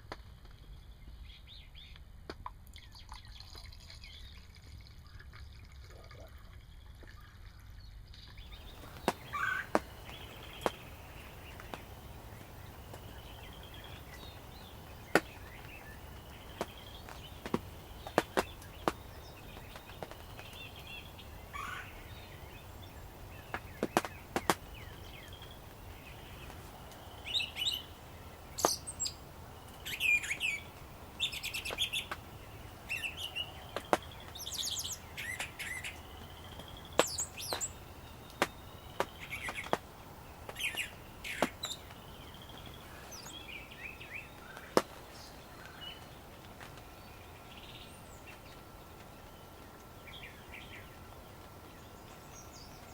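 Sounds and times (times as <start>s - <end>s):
raindrops ticking: 8.2s - 47.6s
songbirds warbling: 8.2s - 52.9s.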